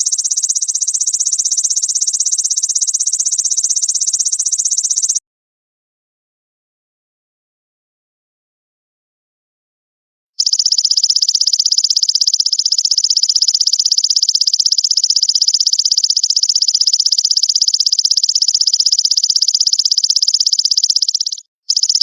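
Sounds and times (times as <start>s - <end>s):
grasshopper buzzing pulses: 0.0s - 5.2s.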